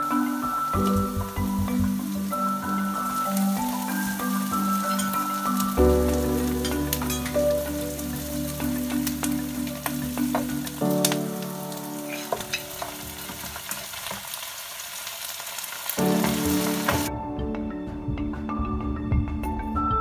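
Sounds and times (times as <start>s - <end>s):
onions sizzling in hot oil: 0.0s - 17.1s.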